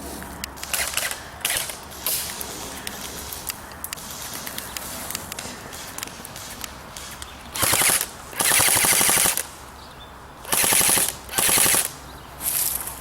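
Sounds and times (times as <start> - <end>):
airsoft rifle bursts: 0.6 - 3.4, 5.7 - 9.5, 10.4 - 12.8.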